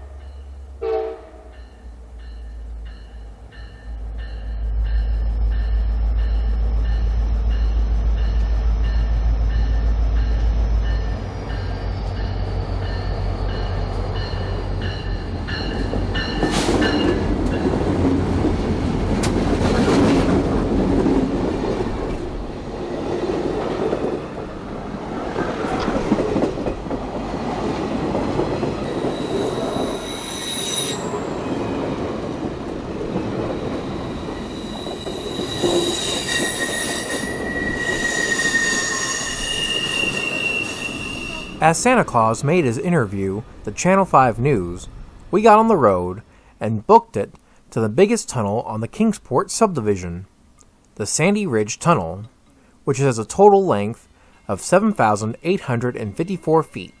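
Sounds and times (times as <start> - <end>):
wheels squealing on rails: 0.0 - 17.8, 27.4 - 41.9
train wheels clattering on rails: 1.6 - 30.2.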